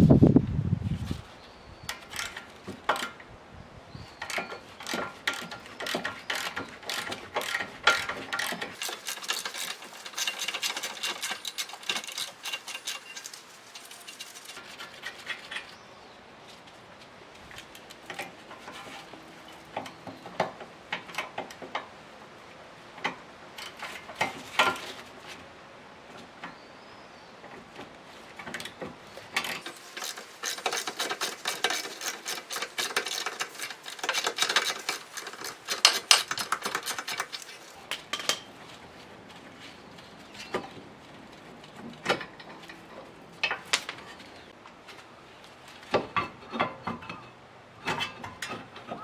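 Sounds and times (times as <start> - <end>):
metal hand tools clicking: 4.2 - 15.2, 29.5 - 38.4.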